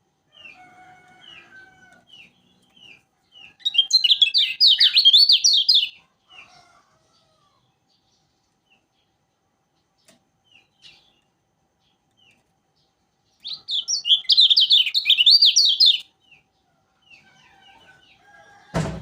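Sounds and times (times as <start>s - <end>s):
bird chirping and singing: 1.2s - 6.0s, 13.3s - 18.2s.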